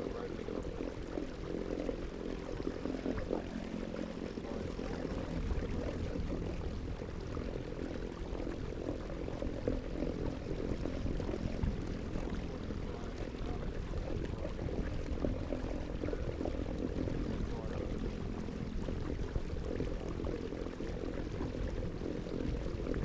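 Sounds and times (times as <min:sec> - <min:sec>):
rushing water: 0:00.0 - 0:23.0.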